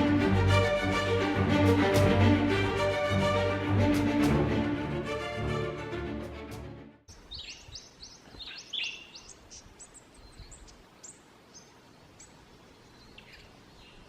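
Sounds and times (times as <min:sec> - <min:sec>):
faint background hiss: 0:07.1 - 0:14.0
small birds chirping: 0:07.1 - 0:14.0.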